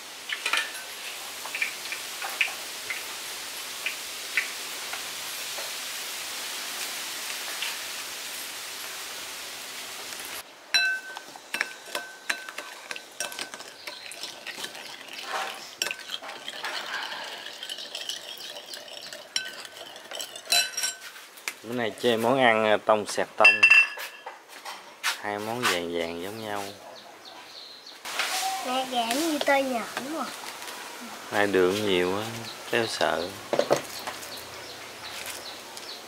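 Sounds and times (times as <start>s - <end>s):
food frying in oil: 0.0s - 21.6s, 28.1s - 36.0s
utensils clinking against dishes: 10.8s - 21.1s, 23.4s - 24.3s.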